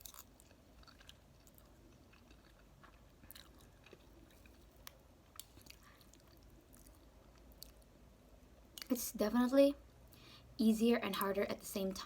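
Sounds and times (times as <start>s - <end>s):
chewing noodles: 0.0s - 7.8s.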